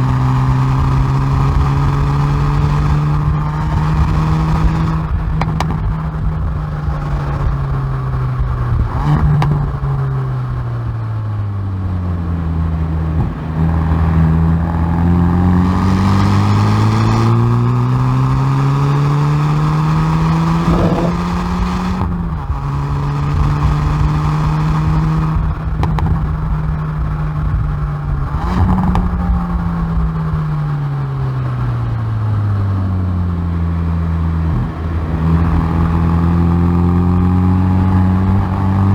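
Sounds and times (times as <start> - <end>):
car exhaust accelerating: 0.0 - 38.9.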